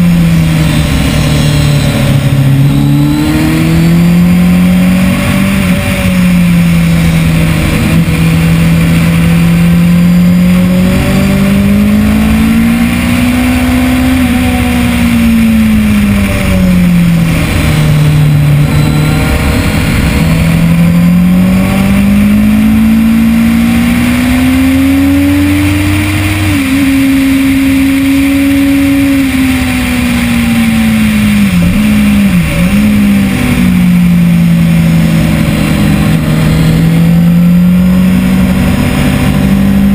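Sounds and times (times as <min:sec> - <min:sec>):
motorcycle engine at speed: 0:00.0 - 0:39.9.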